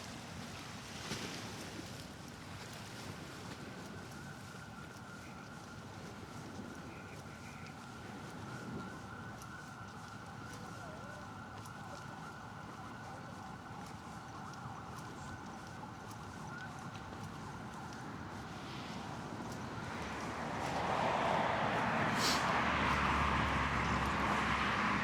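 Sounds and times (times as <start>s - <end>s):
low traffic hum: 16.5s - 25.0s
vehicle passing close: 19.8s - 25.0s.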